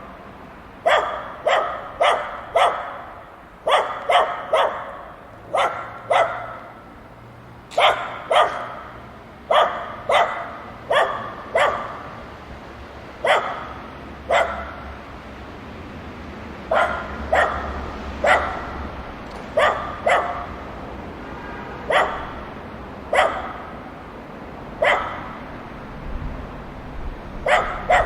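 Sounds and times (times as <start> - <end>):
dogs barking: 0.8 - 6.9, 7.7 - 12.3, 13.2 - 15.0, 16.6 - 20.8, 21.8 - 23.9, 24.8 - 25.6, 27.4 - 28.0.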